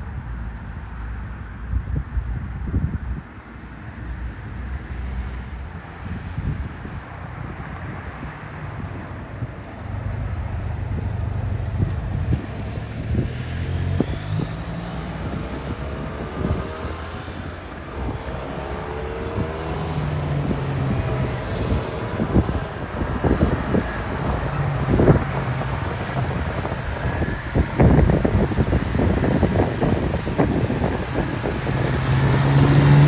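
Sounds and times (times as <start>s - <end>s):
truck diesel engine running: 8.8s - 33.0s.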